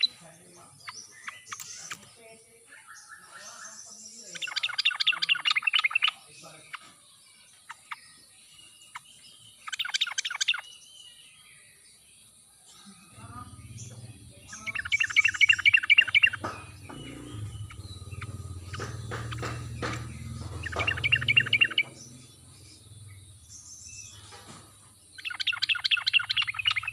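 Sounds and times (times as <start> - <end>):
bird bubbly chattering: 4.3 - 6.8, 9.6 - 10.6, 13.1 - 24.2, 25.1 - 26.9
low rumble: 16.3 - 24.1.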